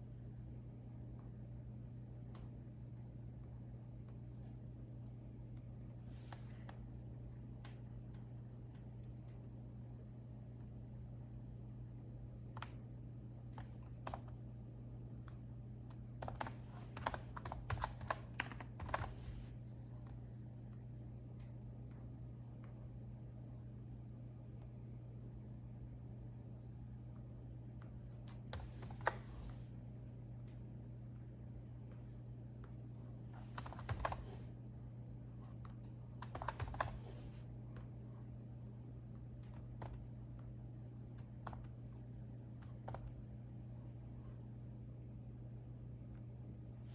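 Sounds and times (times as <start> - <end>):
faint low hum: 0.0 - 46.9
laptop keyboard typing: 13.4 - 14.4, 15.8 - 19.5, 28.3 - 29.5, 33.4 - 34.5, 36.2 - 37.3, 39.4 - 40.1, 41.2 - 41.8, 42.6 - 43.2.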